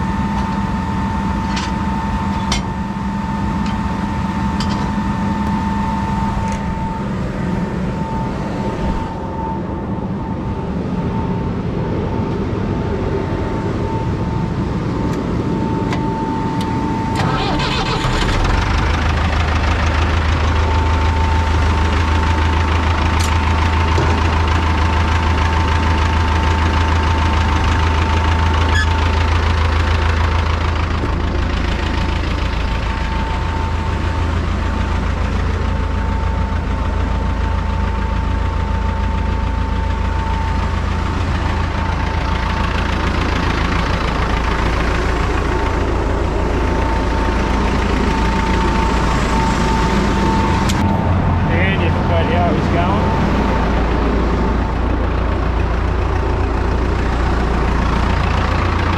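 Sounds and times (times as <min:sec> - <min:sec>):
high whine: 0:00.0 - 0:29.8, 0:39.5 - 0:55.8
tractor diesel engine running: 0:00.0 - 0:58.9.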